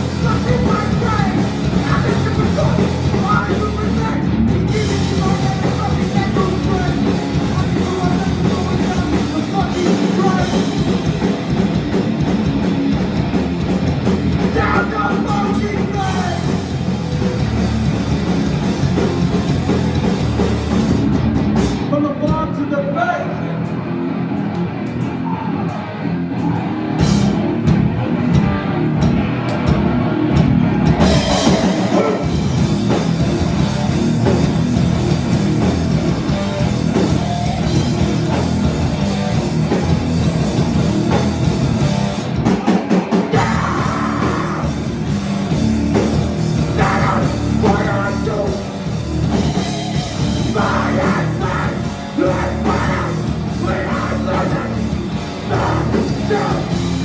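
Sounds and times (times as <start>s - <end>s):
drum kit: 0.0s - 22.6s, 24.4s - 57.0s
bass guitar: 0.0s - 57.0s
distorted guitars: 0.0s - 57.0s
person singing: 0.2s - 10.8s, 14.5s - 16.6s, 43.3s - 44.8s, 46.6s - 48.7s, 50.4s - 57.0s.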